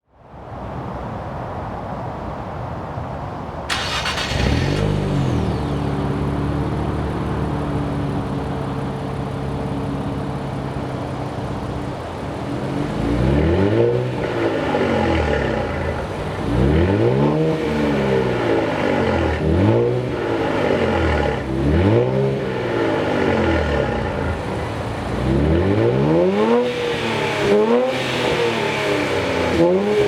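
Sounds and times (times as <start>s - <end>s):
engine starter: 3.7s - 6.0s
engine revving: 3.7s - 7.6s, 12.6s - 30.0s
car engine idling: 3.7s - 30.0s.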